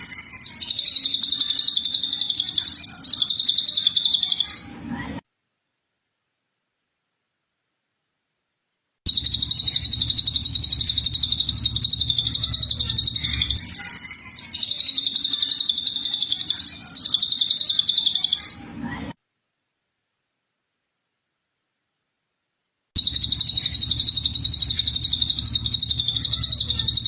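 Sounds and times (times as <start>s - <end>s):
bird high-pitched trill: 0.0s - 4.6s, 9.1s - 18.6s, 23.0s - 27.0s
faint low hum: 0.0s - 27.0s.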